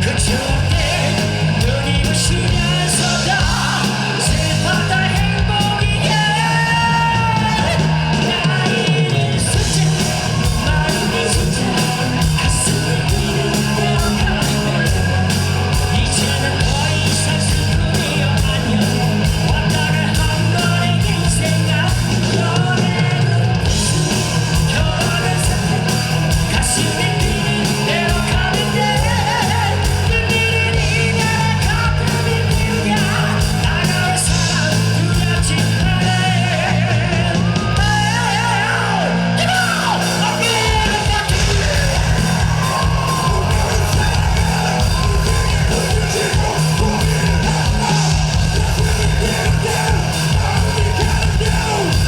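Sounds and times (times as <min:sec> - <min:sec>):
high male rock vocal: 0:00.0 - 0:52.0
live rock band playing: 0:00.0 - 0:52.0.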